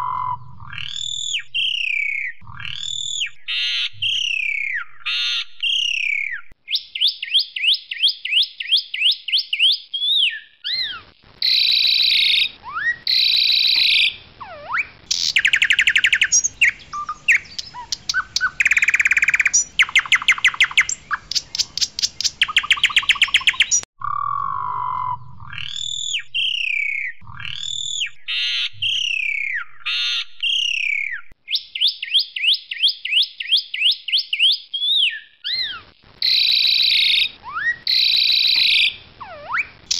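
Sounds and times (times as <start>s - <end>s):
starling singing: 9.0s - 32.5s, 33.8s - 39.9s.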